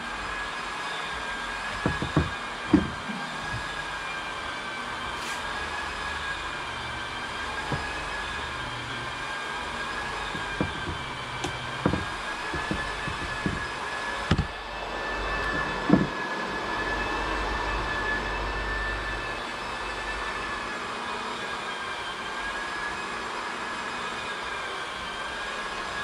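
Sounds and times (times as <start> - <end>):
mechanical whine: 0.0 - 26.0
sharp knocks and thumps: 1.7 - 3.9, 7.6 - 8.0, 10.2 - 14.6, 15.4 - 16.2.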